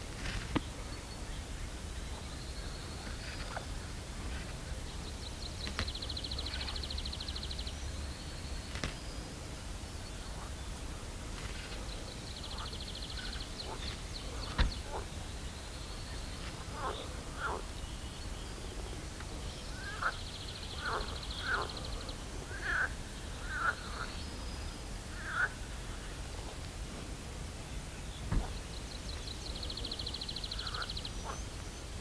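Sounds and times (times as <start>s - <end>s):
steady low background hum: 0.0s - 32.0s.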